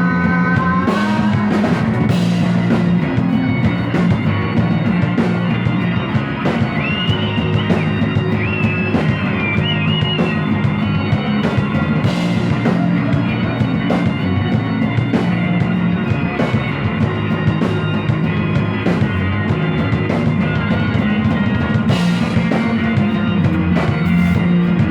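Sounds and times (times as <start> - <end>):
drum kit: 0.0 - 24.9
guitar playing: 0.0 - 24.9.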